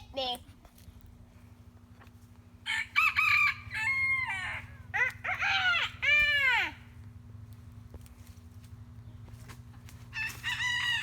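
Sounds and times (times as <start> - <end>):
rooster crowing: 2.6 - 6.9, 10.1 - 11.0.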